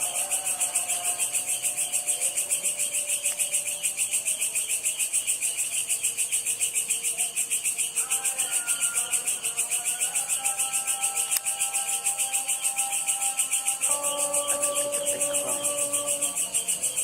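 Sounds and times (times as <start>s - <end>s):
insects pulsing chorus: 0.0s - 17.0s
faint low drawn-out tones: 12.7s - 17.0s.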